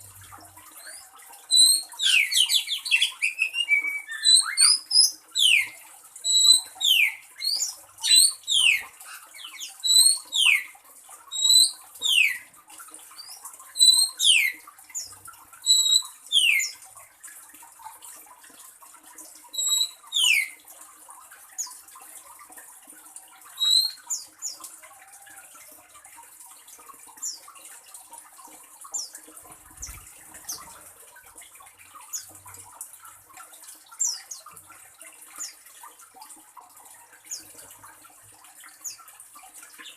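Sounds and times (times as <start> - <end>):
bird whistling: 1.6 - 4.8.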